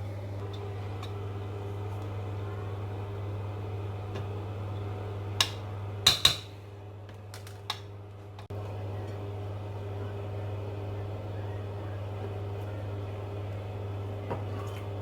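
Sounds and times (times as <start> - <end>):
steady low hum: 0.0 - 15.0
metal knocks against cooking pot: 5.4 - 6.5.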